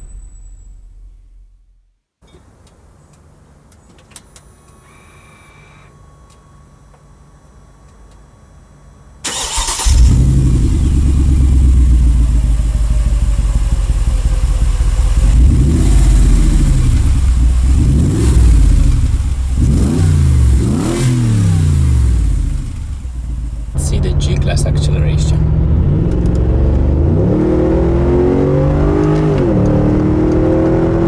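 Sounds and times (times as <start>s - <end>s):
engine starting: 9.2s - 10.2s
engine revving: 19.6s - 22.4s, 23.8s - 31.0s.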